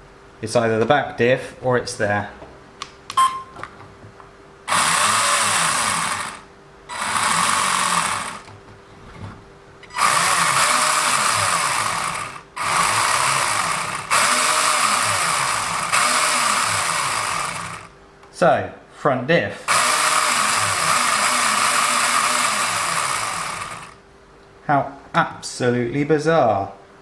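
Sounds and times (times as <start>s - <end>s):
driveshaft grinding: 4.7s - 8.5s, 9.9s - 17.9s, 19.7s - 24.0s
toy car electric motor whirring: 4.7s - 8.5s, 9.9s - 17.9s, 19.7s - 24.0s.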